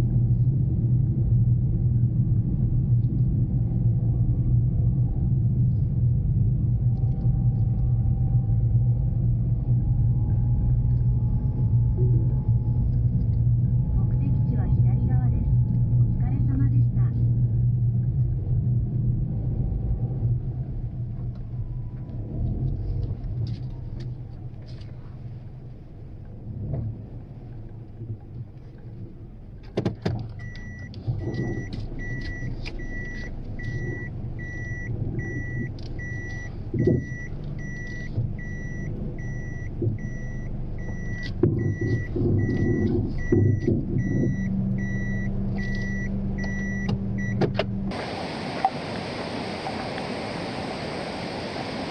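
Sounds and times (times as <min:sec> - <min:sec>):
car engine humming: 0:00.0 - 0:51.9
electronic warning beep: 0:30.4 - 0:47.4.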